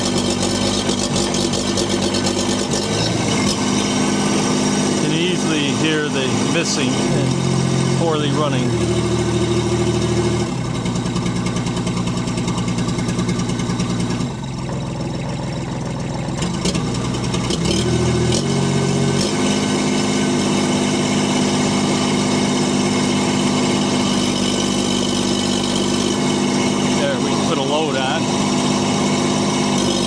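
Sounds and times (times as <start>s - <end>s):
engine running poorly and missing: 0.0s - 30.0s.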